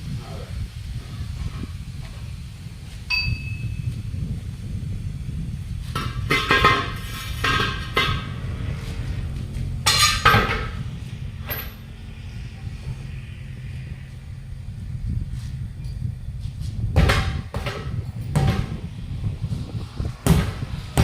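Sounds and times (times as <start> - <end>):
steady low rumble: 0.0 - 21.0
metal tools clanking on wheel: 9.8 - 10.8.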